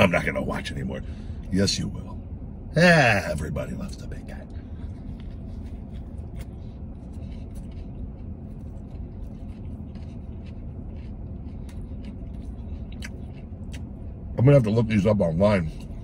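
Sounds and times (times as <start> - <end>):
man chewing food: 4.4 - 14.7, 15.6 - 16.0.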